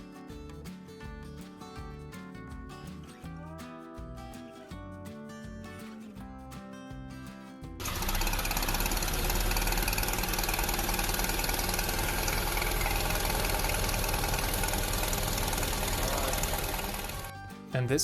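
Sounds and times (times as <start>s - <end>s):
engine rattling clatter: 7.8s - 17.3s.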